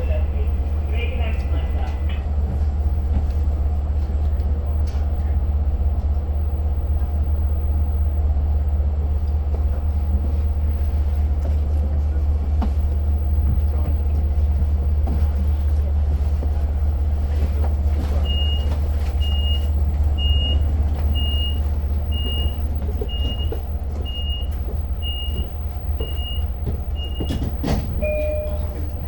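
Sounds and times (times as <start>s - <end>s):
diesel train rumbling: 0.0s - 29.0s
short high beeps: 28.0s - 28.9s
two-tone chime: 28.0s - 29.0s.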